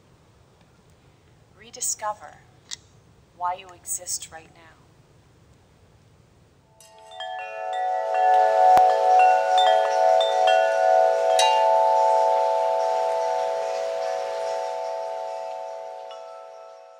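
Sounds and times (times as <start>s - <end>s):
wind chimes ringing: 6.8s - 16.9s.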